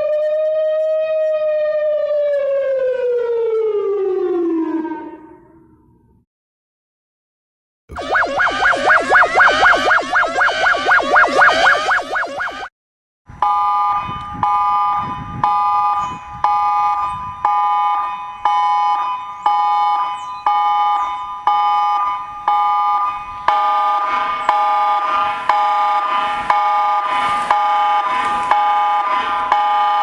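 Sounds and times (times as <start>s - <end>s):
lower alarm tones: 7.9s - 12.7s, 13.4s - 30.0s
pulsing electronic alarm tone: 7.9s - 12.7s, 13.4s - 30.0s.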